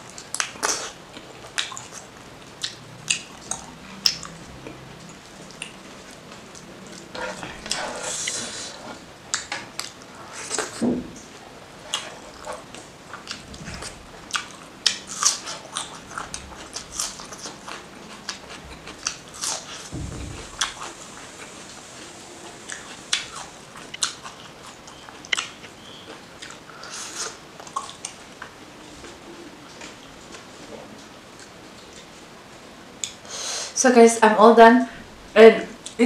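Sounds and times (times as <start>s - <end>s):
wet mouth chewing smacks: 0.3s - 5.8s, 11.9s - 21.7s, 22.4s - 28.2s
soft low thump: 19.9s - 21.8s.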